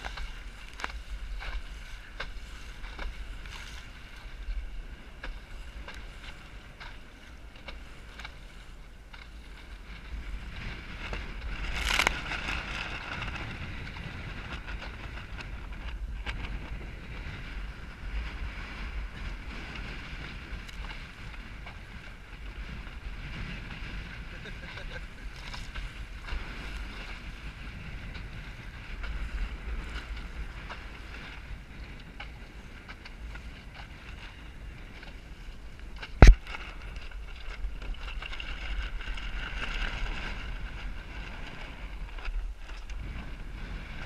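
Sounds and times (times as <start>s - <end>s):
water rushing along hull: 0.0s - 44.0s
wind buffeting microphone: 0.0s - 44.0s
water slapping: 35.8s - 40.4s.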